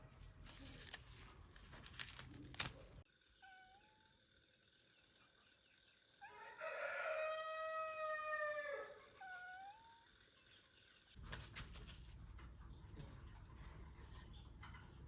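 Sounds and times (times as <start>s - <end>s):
rooster crowing: 6.2s - 9.6s.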